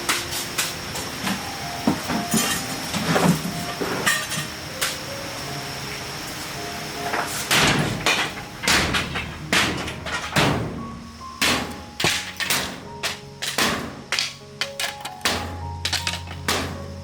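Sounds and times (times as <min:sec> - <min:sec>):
heavy knocks: 0:07.5 - 0:16.9.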